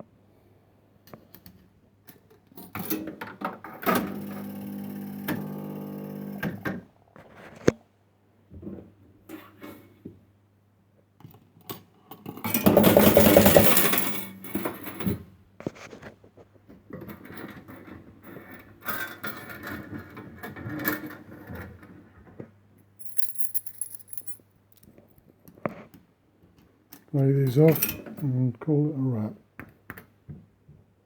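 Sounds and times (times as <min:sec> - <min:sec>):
coins clattering in a machine: 0:12.6 - 0:14.3, 0:23.0 - 0:24.4.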